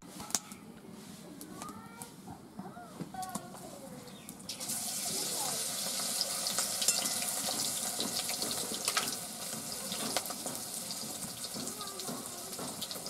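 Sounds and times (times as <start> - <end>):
battered slice frying in a wok: 4.1 - 13.0.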